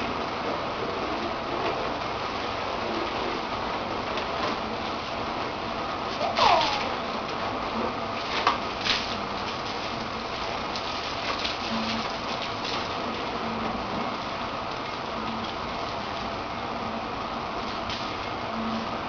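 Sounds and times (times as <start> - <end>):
water spraying on car: 4.6 - 19.0.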